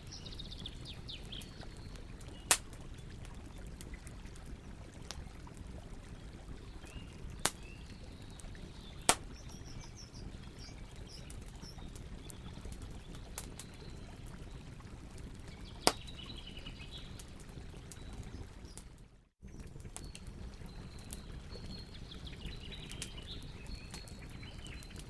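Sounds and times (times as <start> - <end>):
birds chirping: 0.0 - 3.5, 6.7 - 14.2
campfire crackling and popping: 0.0 - 25.0.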